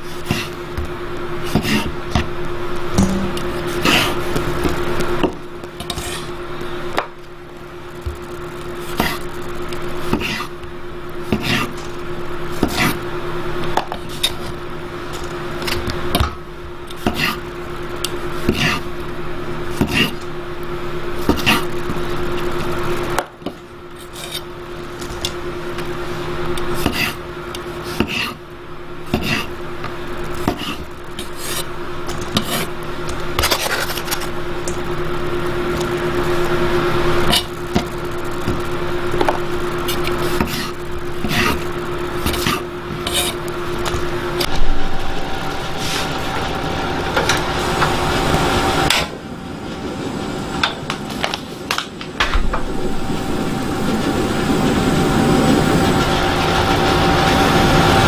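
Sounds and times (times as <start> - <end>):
steady hum: 0.0 - 58.0
utensils knocking and scraping: 2.9 - 4.8.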